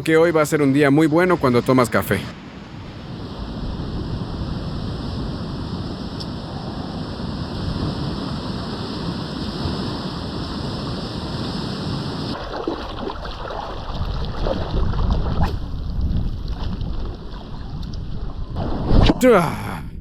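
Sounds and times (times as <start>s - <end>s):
surf on the shore: 0.1s - 15.5s, 18.6s - 19.8s
wind buffeting microphone: 2.7s - 12.4s, 13.8s - 19.2s.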